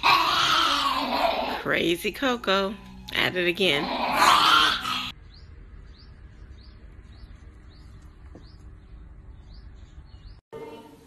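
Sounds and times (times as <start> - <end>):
bird chirping: 5.0 - 10.9.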